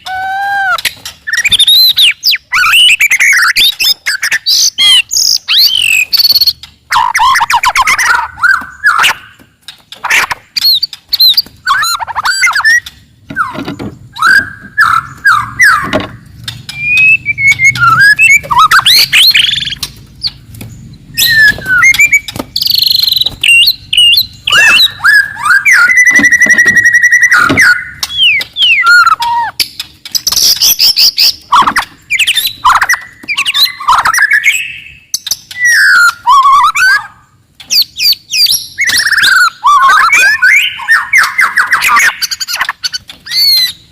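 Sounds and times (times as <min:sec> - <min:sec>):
bird singing whistles and trills: 0:00.0 - 0:09.4, 0:10.0 - 0:43.9.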